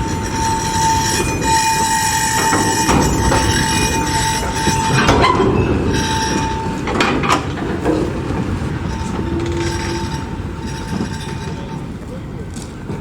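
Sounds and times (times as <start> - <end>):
rail joint knocks: 0.0 - 11.6
thin steady squeal: 0.0 - 12.2
train wheels rumbling on track: 0.0 - 13.0.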